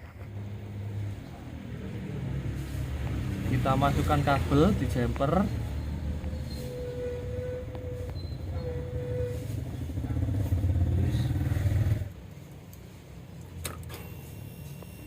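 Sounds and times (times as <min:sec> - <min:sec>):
scooter engine running: 0:09.6 - 0:12.2.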